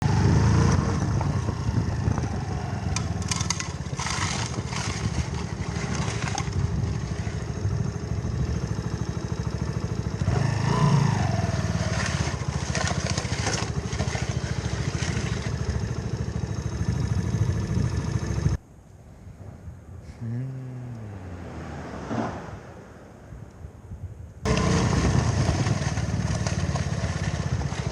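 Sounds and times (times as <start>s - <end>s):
motorcycle engine running: 0.0s - 18.6s, 24.5s - 27.9s
rough crackling noise: 2.9s - 7.6s.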